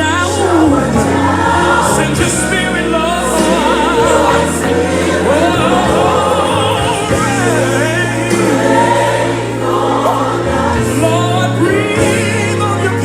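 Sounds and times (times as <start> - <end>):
band accompaniment: 0.0 - 13.0
choir singing: 0.0 - 13.0
steady bass: 0.0 - 13.0.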